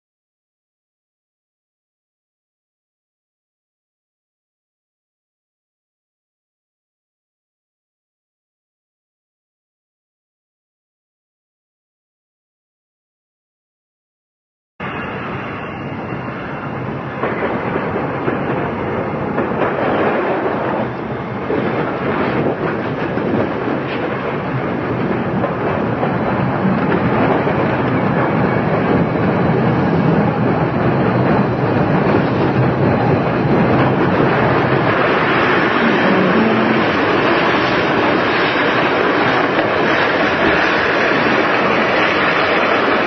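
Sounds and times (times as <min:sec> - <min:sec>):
train rumbling on rails: 0:14.8 - 0:43.0.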